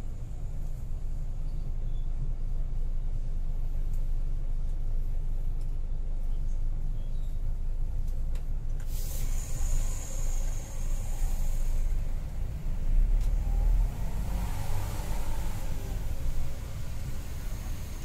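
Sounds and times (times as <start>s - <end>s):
coach engine and road rumble: 0.0s - 18.0s
high hiss: 8.9s - 12.4s.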